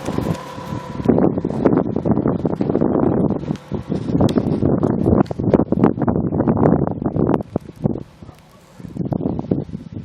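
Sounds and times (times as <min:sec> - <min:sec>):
wind buffeting microphone: 0:00.0 - 0:10.0
rustling and crackling: 0:07.2 - 0:09.2.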